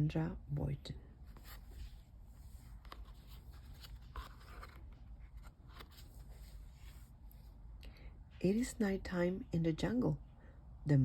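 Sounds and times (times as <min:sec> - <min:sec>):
low room hum: 0:00.0 - 0:11.0
book page rustling: 0:01.2 - 0:07.6.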